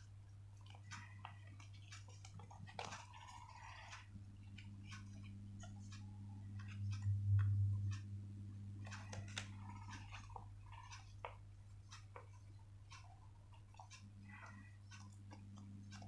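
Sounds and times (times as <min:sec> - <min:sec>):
paper being handled and folded: 0:00.0 - 0:07.9
low electrical hum: 0:00.0 - 0:16.0.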